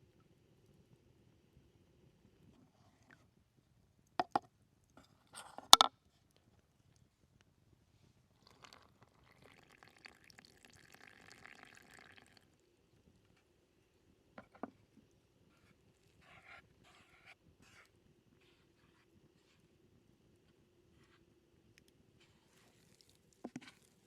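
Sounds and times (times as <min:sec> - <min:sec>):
faint liquid pouring: 0:08.3 - 0:12.7, 0:21.8 - 0:24.0
soft handling sounds: 0:13.0 - 0:24.0.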